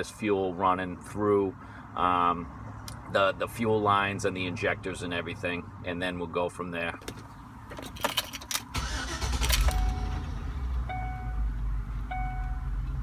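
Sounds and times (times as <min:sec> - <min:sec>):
engine starting and idling: 0:08.5 - 0:10.9.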